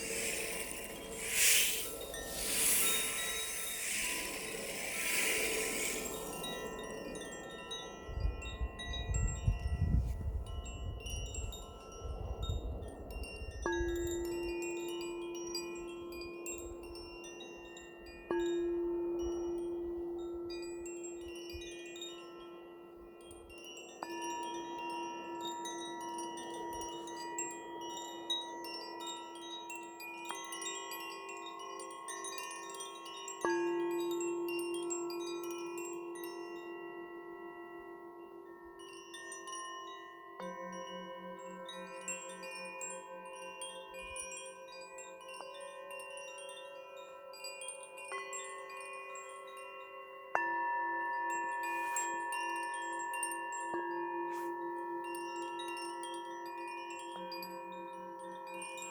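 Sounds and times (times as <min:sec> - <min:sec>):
high hiss: 0:00.0 - 0:07.5
wind chimes ringing: 0:00.0 - 0:58.9.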